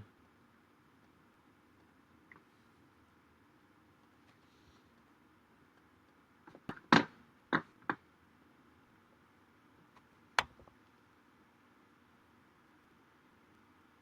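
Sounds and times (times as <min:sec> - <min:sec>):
faint room hiss: 0:00.0 - 0:14.0
sharp clicks: 0:10.4 - 0:10.7.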